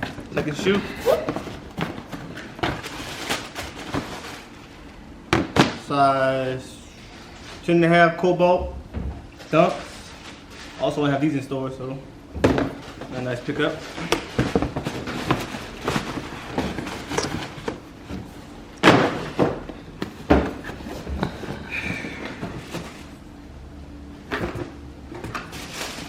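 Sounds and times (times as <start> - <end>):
cardboard boxes being handled: 12.4 - 23.2.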